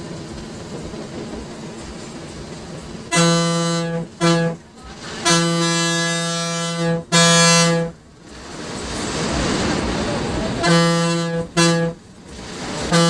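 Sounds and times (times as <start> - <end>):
bus road noise: 0.0 - 13.0
bus horn blasts: 3.1 - 4.6, 5.2 - 8.0, 10.6 - 12.0.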